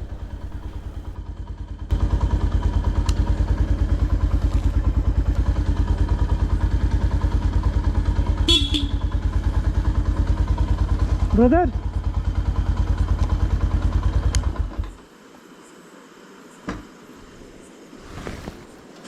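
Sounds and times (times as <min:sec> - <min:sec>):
motorcycle engine running: 0:00.0 - 0:14.8
horn beep: 0:08.5 - 0:09.0.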